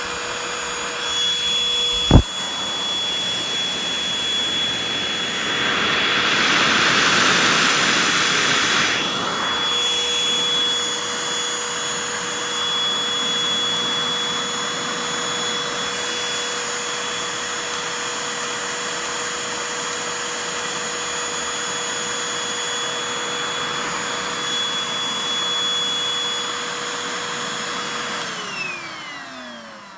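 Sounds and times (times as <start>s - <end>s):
handheld vacuum cleaner whining: 0.0s - 29.9s.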